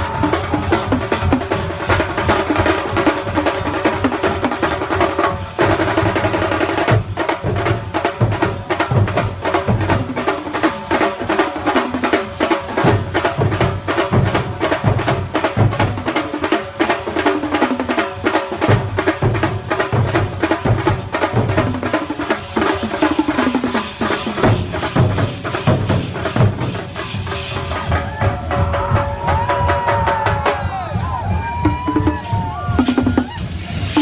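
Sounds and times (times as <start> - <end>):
fast percussion ensemble drumming: 0.0 - 34.0.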